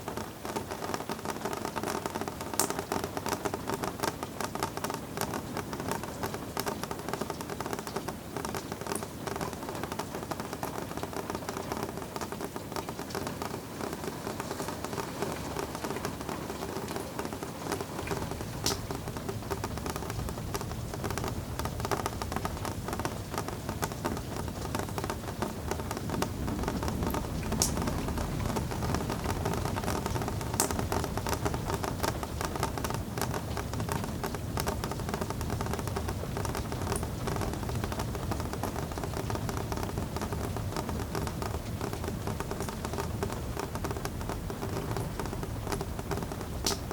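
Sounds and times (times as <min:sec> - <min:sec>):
rain pattering: 0:00.0 - 0:46.9
deep low rumble: 0:26.2 - 0:29.8.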